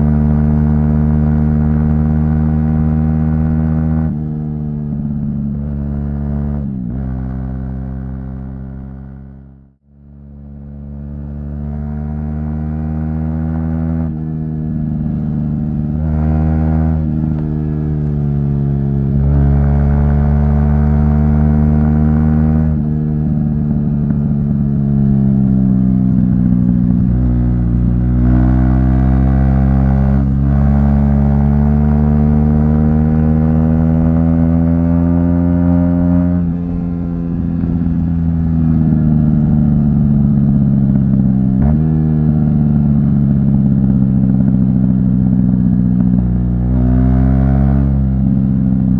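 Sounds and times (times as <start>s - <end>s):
motorcycle engine revving through gears: 0.0s - 48.9s.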